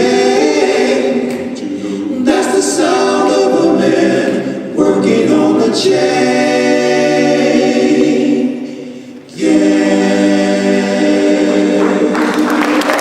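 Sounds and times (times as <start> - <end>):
vocal group holding a chord: 0.0 - 13.0
audience applause: 11.8 - 13.0.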